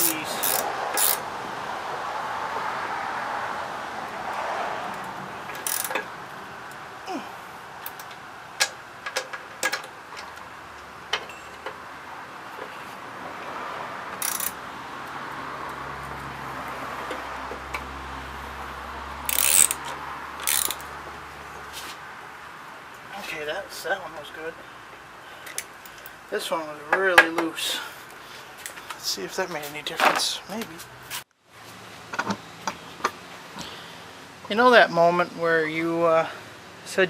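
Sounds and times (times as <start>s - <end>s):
socket ratchet clicking: 0.0s - 1.2s, 5.5s - 6.0s, 14.2s - 14.6s, 19.3s - 20.9s
metal clinks: 11.2s - 11.7s.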